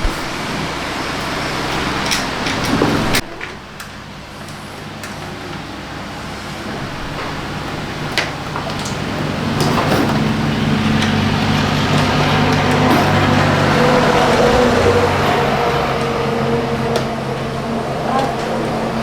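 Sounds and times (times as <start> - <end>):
scooter engine running: 0.0 - 19.0.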